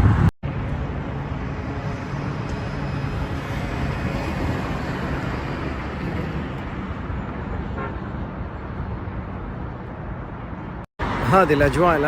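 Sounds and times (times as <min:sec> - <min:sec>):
sandstorm wind rushing: 0:00.0 - 0:07.6
road traffic rumble: 0:00.0 - 0:12.0.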